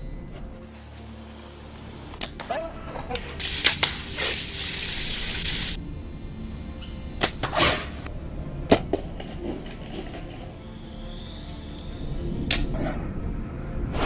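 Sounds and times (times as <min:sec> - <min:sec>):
bowstring snap: 0:03.1 - 0:04.8, 0:12.5 - 0:12.8.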